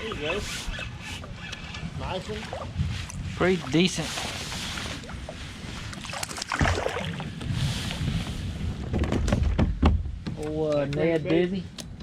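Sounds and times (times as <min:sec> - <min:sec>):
water sounds: 0:00.0 - 0:08.0
wind rumbling on microphone: 0:00.0 - 0:10.4.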